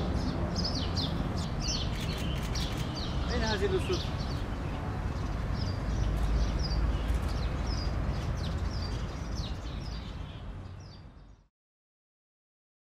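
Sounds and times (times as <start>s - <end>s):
small birds chirping: 0.0s - 11.5s
steady low outdoor rumble: 5.9s - 9.4s.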